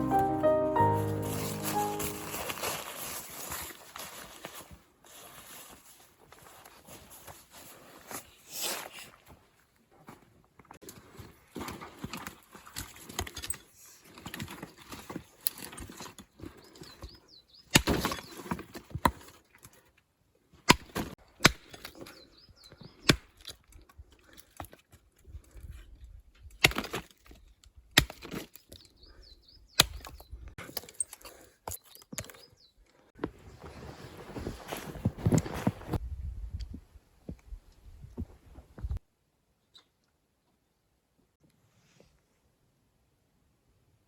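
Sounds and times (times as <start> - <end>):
shuffling and crunching: 0.0 - 17.2, 33.2 - 36.1.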